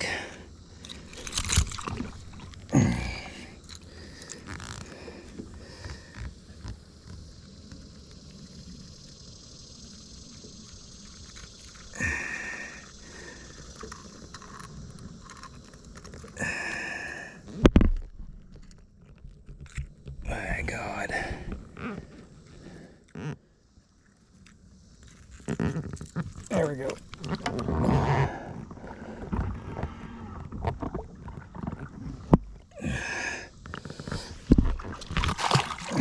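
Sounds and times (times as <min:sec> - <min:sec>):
handling noises: 0:00.8 - 0:02.7, 0:24.1 - 0:32.6.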